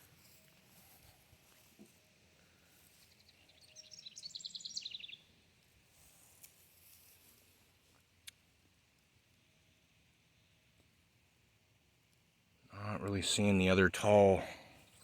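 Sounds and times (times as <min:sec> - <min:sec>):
songbird singing: 0:01.9 - 0:05.6.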